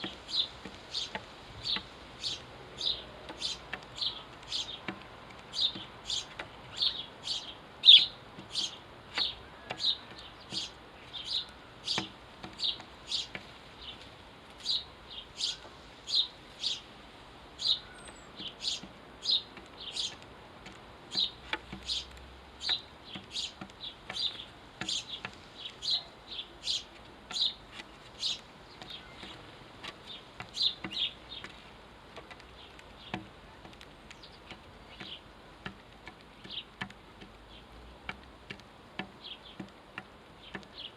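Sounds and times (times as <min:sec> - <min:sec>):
sparrow chirping: 0:00.0 - 0:40.9.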